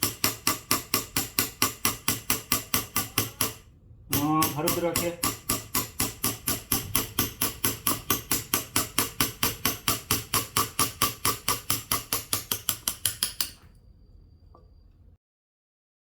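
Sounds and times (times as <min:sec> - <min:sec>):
mallet tapping a chisel into wood: 0:00.0 - 0:13.6.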